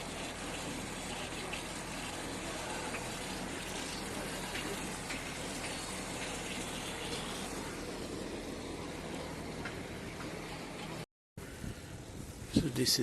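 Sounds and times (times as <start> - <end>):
wind rushing over microphone: 11.4 - 13.0.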